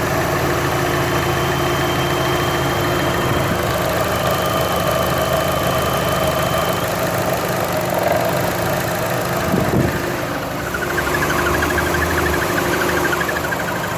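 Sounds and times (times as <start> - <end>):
car engine idling: 0.0 - 13.9
high squeak: 9.3 - 13.9.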